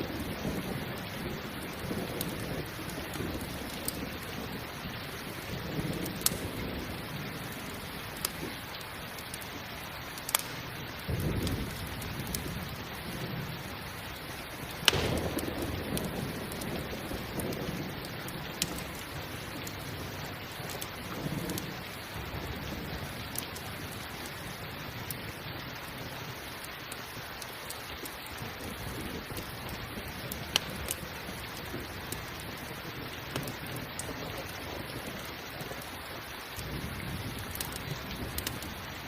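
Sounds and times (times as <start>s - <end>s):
campfire crackling pops: 0.0s - 39.0s
steady rain: 0.0s - 39.0s
distant thunder rolls: 14.7s - 23.2s.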